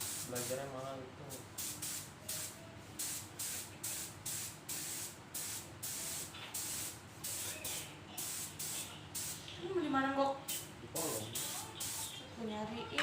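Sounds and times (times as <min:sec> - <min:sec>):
spray paint hissing bursts: 0:00.0 - 0:00.6, 0:01.6 - 0:09.4, 0:10.5 - 0:12.2.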